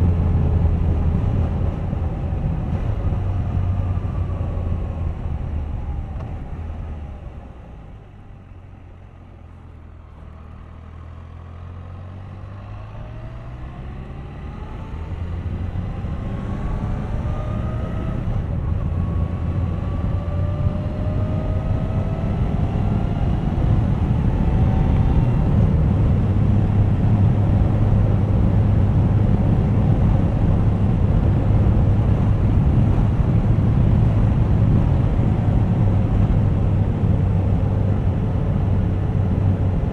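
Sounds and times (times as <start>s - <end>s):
motorcycle engine accelerating: 8.6s - 39.9s.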